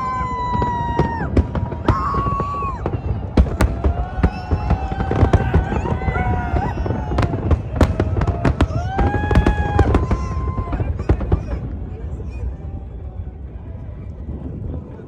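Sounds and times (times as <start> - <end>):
fireworks whistling: 0.0 - 13.1
fireworks bangs and crackles: 0.0 - 15.0.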